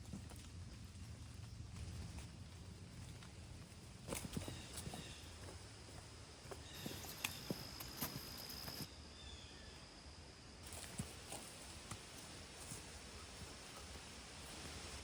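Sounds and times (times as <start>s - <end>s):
footsteps on a trail: 0.0s - 8.9s, 10.6s - 15.0s
faint outdoor hiss: 0.0s - 15.0s.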